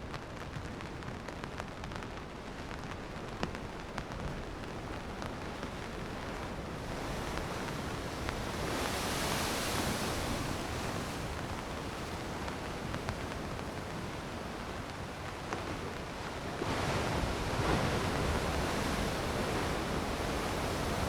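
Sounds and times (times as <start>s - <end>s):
surf breaking against rocks: 16.6s - 21.0s.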